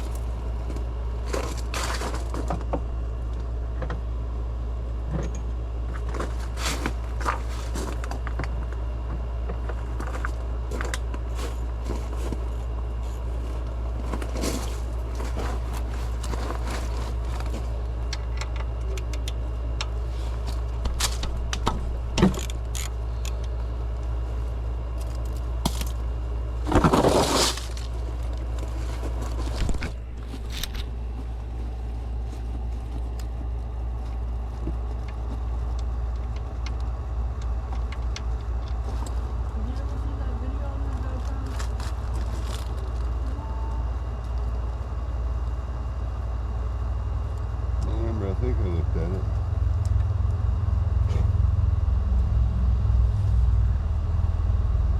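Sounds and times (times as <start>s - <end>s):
car engine and road rumble: 0.0s - 43.8s, 46.5s - 54.9s
loud rushing noise: 50.4s - 54.9s.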